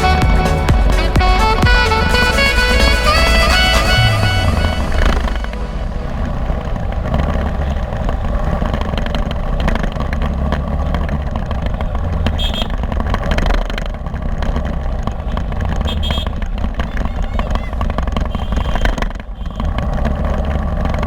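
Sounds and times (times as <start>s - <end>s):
brief high tone: 0.0s - 7.3s
city road traffic: 0.0s - 21.0s
motorbike engine rumble: 0.0s - 21.0s.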